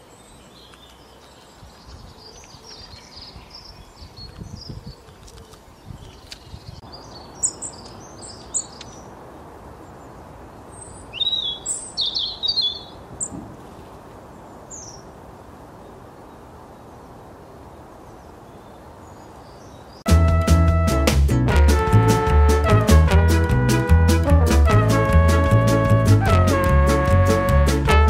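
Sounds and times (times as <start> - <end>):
small birds chirping: 0.0 - 15.2, 18.0 - 20.1
outdoor background noise: 0.0 - 20.6.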